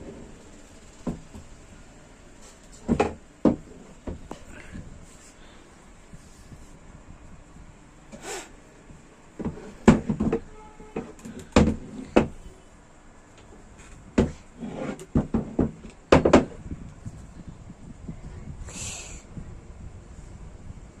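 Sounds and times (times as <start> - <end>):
wooden stool parts knocking: 2.7 - 4.4, 9.4 - 12.4, 14.2 - 16.6.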